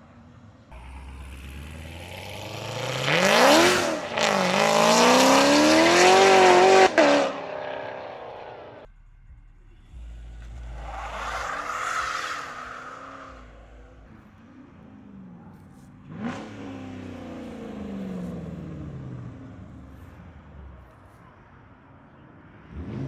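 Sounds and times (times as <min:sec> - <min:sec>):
car engine revving: 0:00.7 - 0:21.2, 0:22.6 - 0:23.0.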